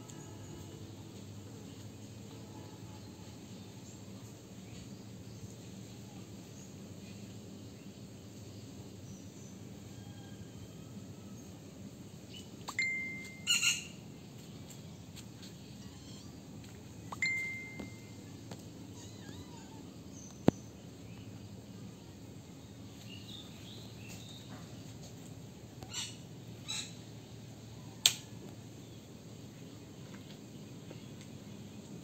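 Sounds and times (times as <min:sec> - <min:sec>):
low steady background noise: 0:00.0 - 0:32.0
high bird chirps: 0:12.7 - 0:14.0, 0:17.1 - 0:18.2.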